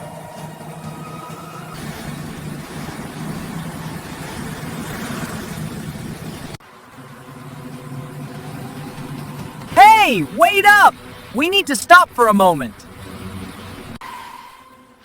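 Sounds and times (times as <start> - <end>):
road noise: 0.0 - 15.0
motorcycle engine running: 1.7 - 9.8.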